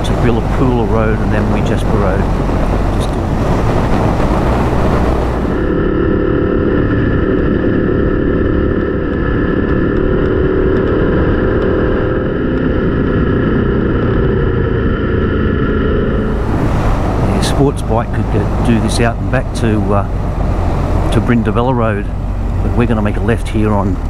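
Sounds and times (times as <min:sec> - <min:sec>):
motorcycle engine running: 0:06.9 - 0:15.4.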